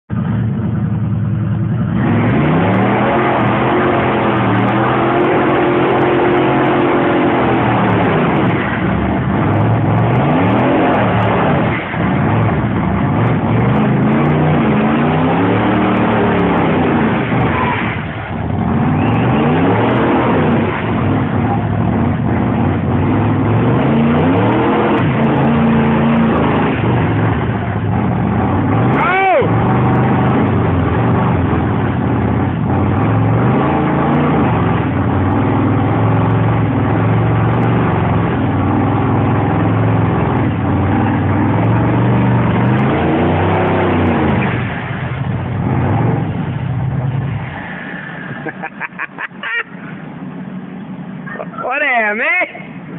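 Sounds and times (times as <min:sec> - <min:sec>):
car engine revving: 0:00.0 - 0:52.9
spinning tyres rushing: 0:00.1 - 0:51.9.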